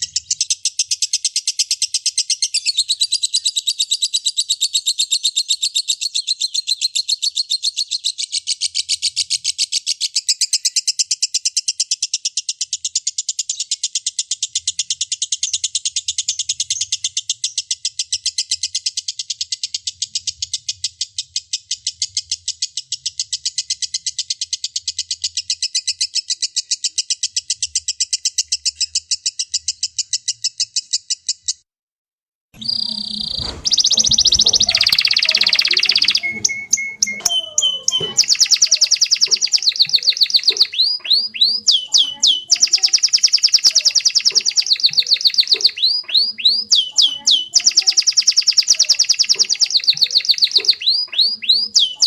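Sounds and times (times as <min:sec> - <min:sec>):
songbird sharp high chirps: 0:32.6 - 0:52.0.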